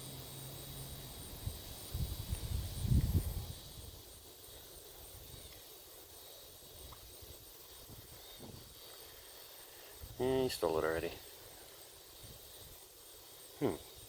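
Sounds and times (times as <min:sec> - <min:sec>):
faint high hiss: 0:00.0 - 0:14.0.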